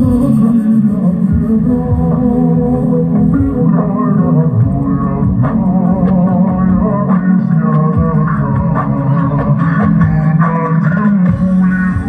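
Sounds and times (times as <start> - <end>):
loud music with heavy bass: 0.0 - 12.0.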